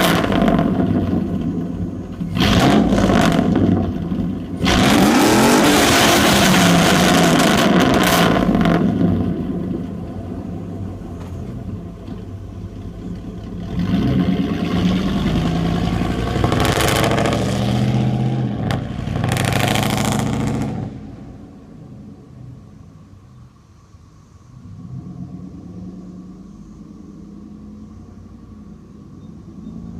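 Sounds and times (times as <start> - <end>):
truck engine revving and idling: 0.0 - 23.1, 24.5 - 29.9.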